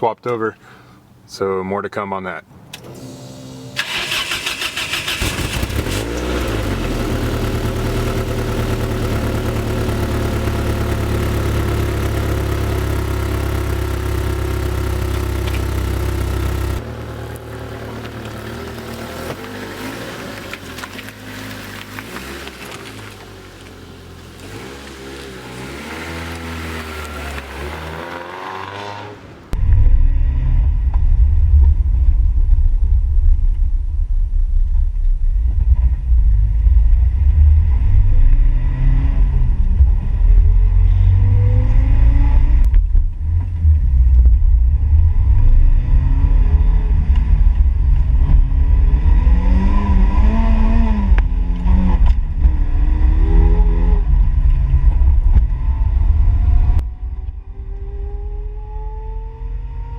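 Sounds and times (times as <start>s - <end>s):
car engine revving while driving: 4.8s - 20.6s, 24.4s - 29.3s, 37.1s - 42.7s, 44.8s - 59.9s.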